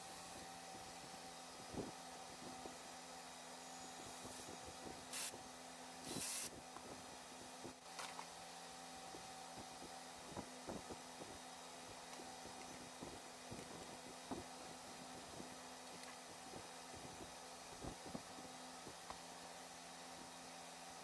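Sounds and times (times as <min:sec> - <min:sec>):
faint steady hum: 0:00.0 - 0:21.0
short hissing sprays: 0:04.1 - 0:05.4, 0:06.0 - 0:06.6.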